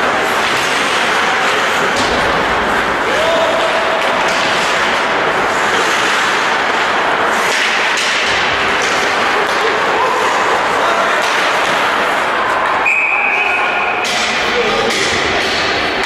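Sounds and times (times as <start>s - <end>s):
sharp knocks and slaps: 0.4s - 5.1s, 5.9s - 9.7s.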